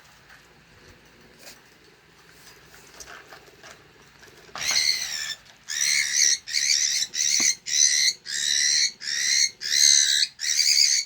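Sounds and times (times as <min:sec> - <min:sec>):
cockatiel calling: 0:04.6 - 0:11.0.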